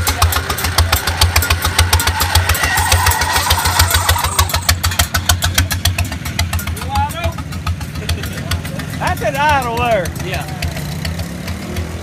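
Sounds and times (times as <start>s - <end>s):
motorcycle engine thudding: 3.7s - 12.0s.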